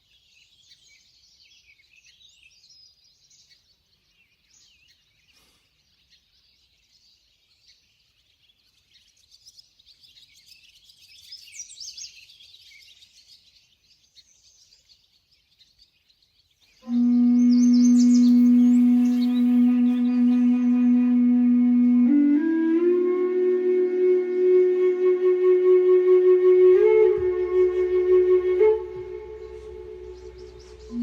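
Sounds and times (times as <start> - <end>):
small birds chirping: 0.0 - 20.5, 29.4 - 31.0
low musical tone with overtones: 16.9 - 31.0.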